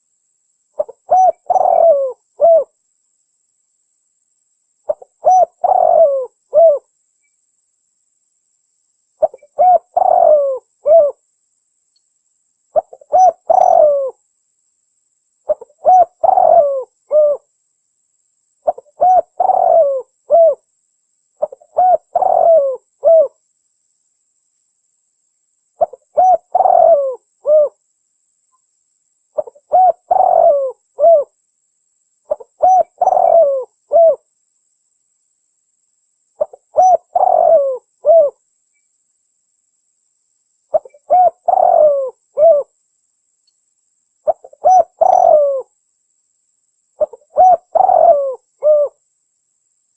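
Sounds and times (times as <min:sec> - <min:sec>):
dove cooing: 0:00.8 - 0:02.8, 0:04.9 - 0:06.9, 0:09.2 - 0:11.2, 0:12.8 - 0:14.2, 0:15.5 - 0:17.5, 0:18.6 - 0:20.6, 0:21.4 - 0:23.4, 0:25.8 - 0:27.8, 0:29.4 - 0:31.4, 0:32.3 - 0:34.2, 0:36.4 - 0:38.4, 0:40.7 - 0:42.7, 0:44.3 - 0:45.7, 0:47.0 - 0:49.0.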